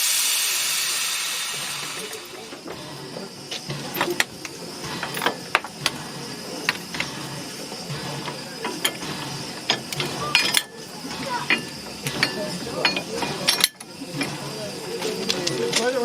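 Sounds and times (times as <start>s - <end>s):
metallic clicks and clanks: 7.9s - 14.4s.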